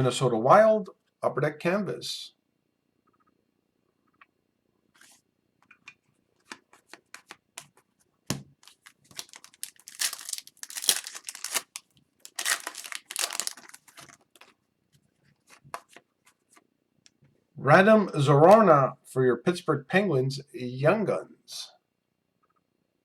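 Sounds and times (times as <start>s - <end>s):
wrapper tearing and crinkling: 8.6s - 14.5s.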